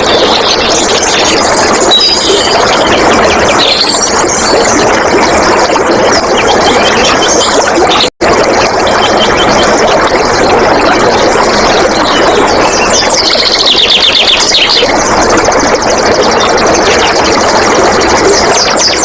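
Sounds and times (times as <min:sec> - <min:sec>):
flowing water: 0:00.0 - 0:19.0
birds singing: 0:00.2 - 0:02.9, 0:03.5 - 0:04.8, 0:12.0 - 0:14.9.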